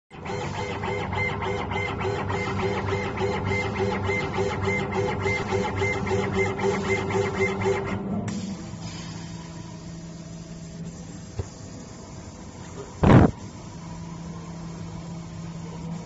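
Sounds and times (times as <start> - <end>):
laser cutter head pulsing whir: 0.1 - 8.0.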